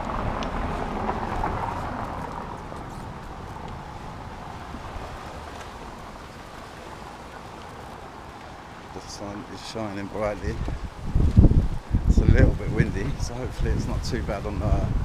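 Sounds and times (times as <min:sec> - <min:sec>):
vehicle passing: 0:00.0 - 0:09.1
distant traffic: 0:00.0 - 0:15.0
wind hiss: 0:00.0 - 0:15.0.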